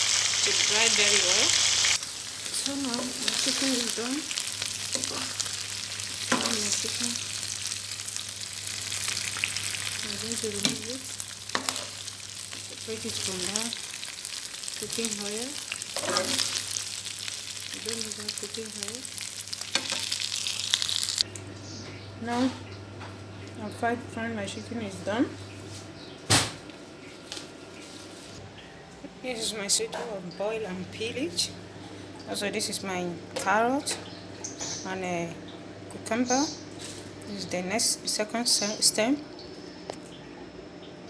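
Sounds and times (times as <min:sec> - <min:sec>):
chicken sizzling in a pan: 0:00.0 - 0:21.3.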